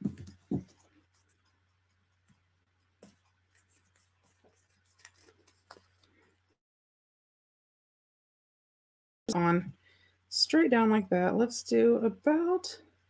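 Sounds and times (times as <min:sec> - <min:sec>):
paper rustling: 0:00.0 - 0:06.5.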